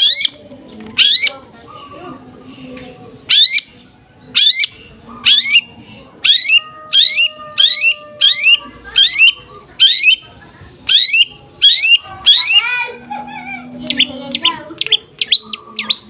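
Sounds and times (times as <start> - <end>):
small bird chirping: 13.8 - 16.0.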